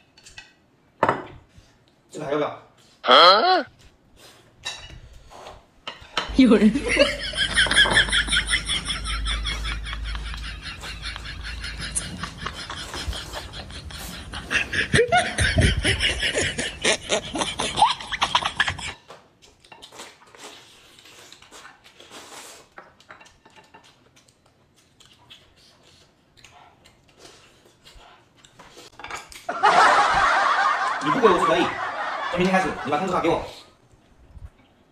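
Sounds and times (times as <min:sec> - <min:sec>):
chewing and smacking mouth sounds: 0:19.4 - 0:29.5.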